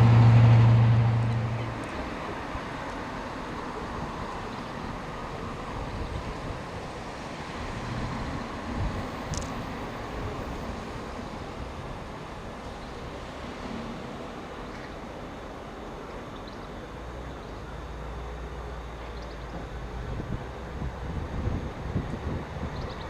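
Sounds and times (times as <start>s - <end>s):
low hum: 0.0s - 2.8s
train running: 0.0s - 23.0s.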